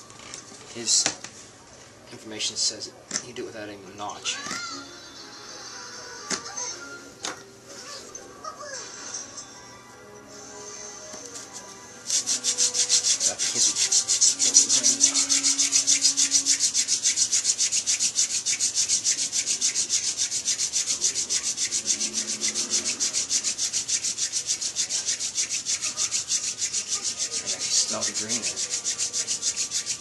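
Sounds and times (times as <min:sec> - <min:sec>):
spindle rubbing on wooden board: 0:12.1 - 0:30.0.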